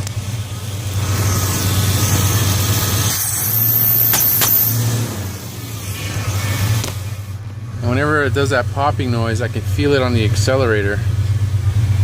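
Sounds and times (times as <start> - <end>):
engine revving: 0.0 - 12.0
sharp pops from carburetor: 2.0 - 5.0, 6.6 - 7.2.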